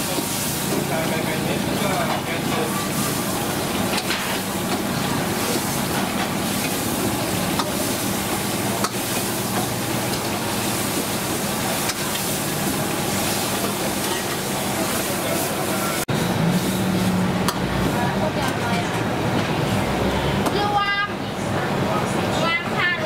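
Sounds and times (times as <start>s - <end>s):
food sizzling in a pan: 0.0s - 17.1s.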